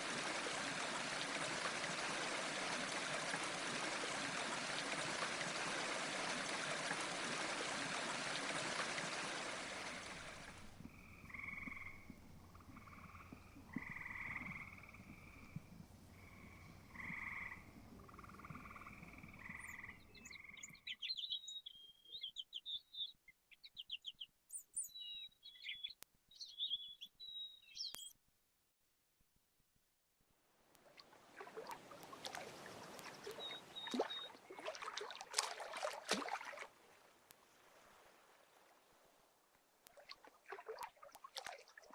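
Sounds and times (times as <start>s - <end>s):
rushing stream water: 0.0s - 12.3s, 30.9s - 41.9s
frogs croaking: 9.1s - 21.0s, 31.3s - 36.6s
small birds chirping: 16.2s - 28.2s, 32.0s - 34.4s.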